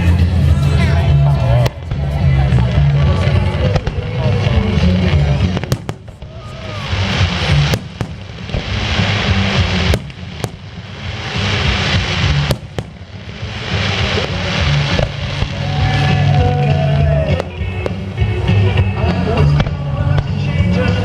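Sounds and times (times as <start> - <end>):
crackling hiss of fireworks: 0.0 - 21.0
firework bangs: 0.0 - 21.0.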